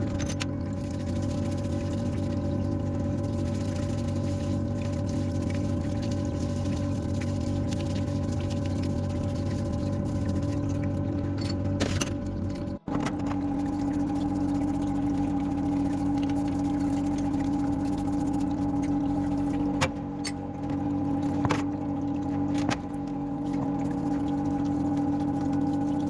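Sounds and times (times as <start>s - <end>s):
machine hum: 0.0s - 26.0s.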